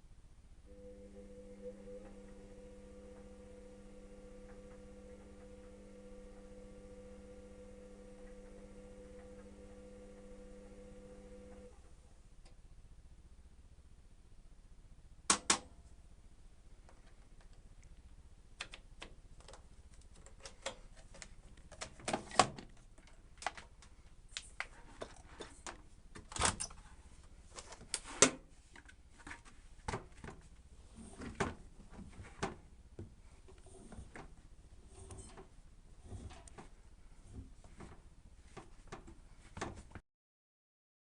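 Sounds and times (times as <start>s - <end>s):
sharp clicks and knocks: 15.3s - 15.7s.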